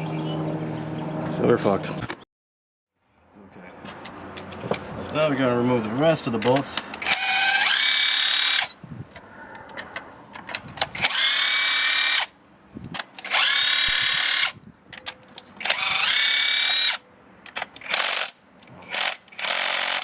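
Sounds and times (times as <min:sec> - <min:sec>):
power tool spinning bolts: 0:07.0 - 0:08.8, 0:10.8 - 0:12.3, 0:13.2 - 0:14.6, 0:15.6 - 0:17.0, 0:17.8 - 0:20.0.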